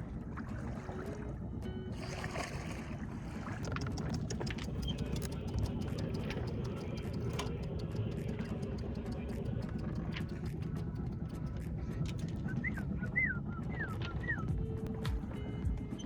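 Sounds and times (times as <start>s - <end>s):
small ticks and splashes: 0.0s - 12.5s
hull moving through water: 0.0s - 16.0s.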